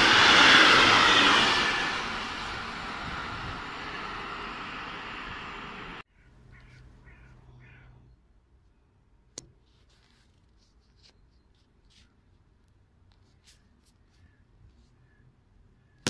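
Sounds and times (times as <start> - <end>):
freight train rushing past: 0.0 - 6.0
low hum: 0.0 - 8.3
bird calling: 6.1 - 8.2.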